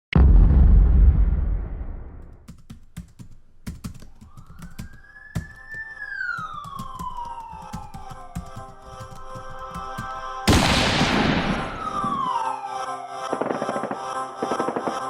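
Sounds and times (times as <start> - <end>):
deep boom: 0.1 - 2.4, 10.5 - 12.3
keyboard-like clicks: 2.5 - 10.2
steady musical tones: 4.7 - 15.0.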